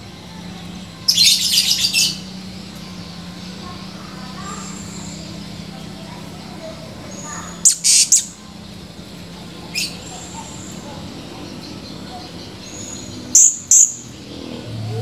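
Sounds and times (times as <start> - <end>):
parrot high-pitched calls: 7.1 - 8.4.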